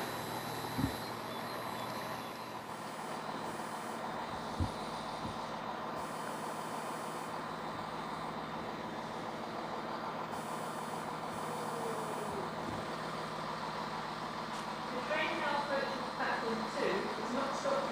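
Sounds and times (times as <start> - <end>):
electrical buzz: 0.0 - 8.4
railway station rumble: 0.0 - 17.9
short thump: 0.8 - 1.0.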